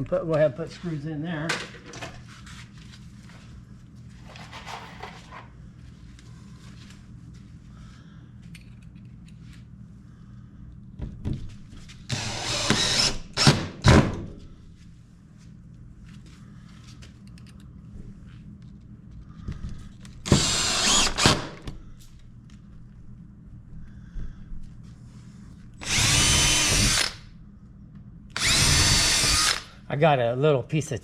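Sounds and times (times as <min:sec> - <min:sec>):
steady low hum: 0:00.0 - 0:31.0
small clicks and handling noises: 0:08.4 - 0:09.7, 0:16.9 - 0:20.2
power drill drilling: 0:12.1 - 0:13.6, 0:20.2 - 0:21.6, 0:25.8 - 0:27.2, 0:28.4 - 0:29.7.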